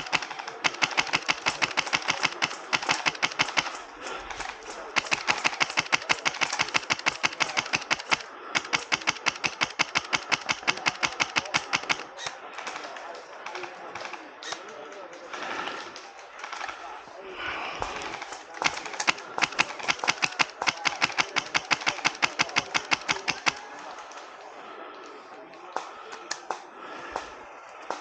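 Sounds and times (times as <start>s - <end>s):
airsoft rifle full-auto bursts: 0.0s - 12.8s, 17.8s - 23.7s.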